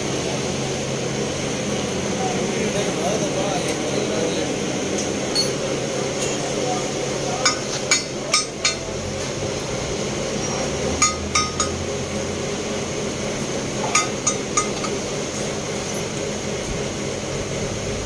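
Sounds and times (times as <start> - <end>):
workshop hum: 0.0 - 18.0
metal-on-metal strikes: 5.3 - 5.8.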